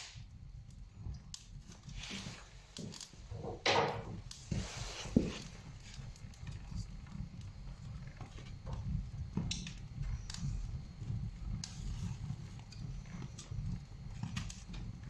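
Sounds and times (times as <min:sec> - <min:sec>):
sharp snaps of fire: 0:00.0 - 0:03.2, 0:09.4 - 0:10.5
kindling fire crackling: 0:00.0 - 0:15.0
low fire rumble: 0:00.0 - 0:15.0.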